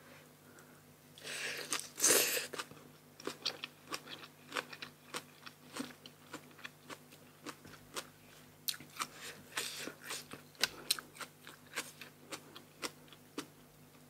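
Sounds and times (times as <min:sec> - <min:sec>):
crunchy food chewing: 0:01.6 - 0:14.0.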